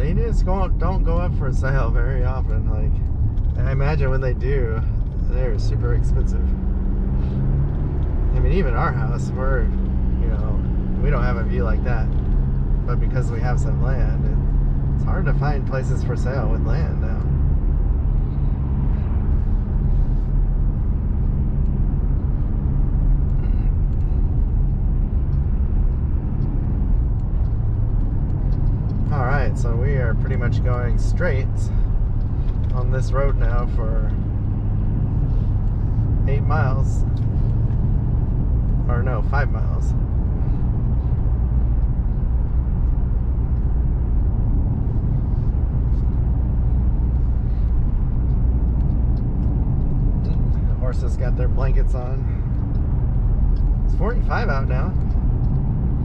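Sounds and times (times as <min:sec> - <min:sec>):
road rumble: 0:00.0 - 0:56.0
truck engine hum: 0:00.0 - 0:56.0.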